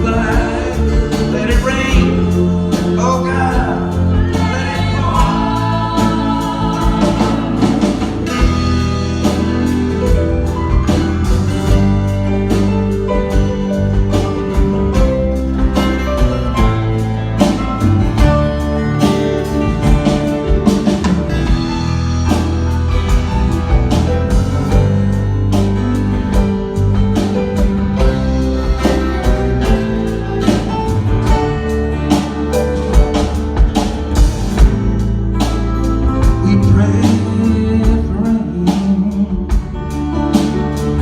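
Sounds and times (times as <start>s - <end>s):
drum kit beat: 0.0s - 41.0s
guitars playing: 0.0s - 41.0s.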